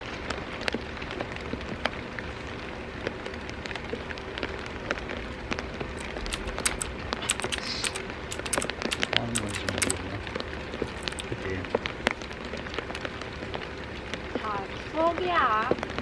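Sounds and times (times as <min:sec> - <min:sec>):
rain hissing on a surface: 0:00.0 - 0:16.0
raindrop hits: 0:03.6 - 0:16.0.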